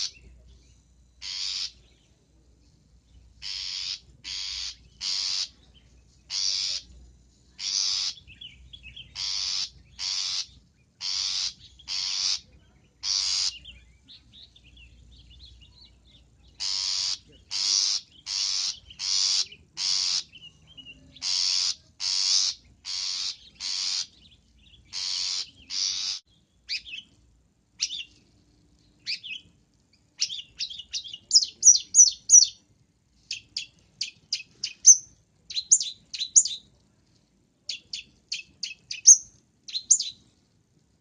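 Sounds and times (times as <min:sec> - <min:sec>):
shrike harsh rasping calls: 0:01.2 - 0:01.8, 0:03.4 - 0:05.6, 0:06.3 - 0:06.9, 0:09.1 - 0:13.6, 0:16.6 - 0:20.4.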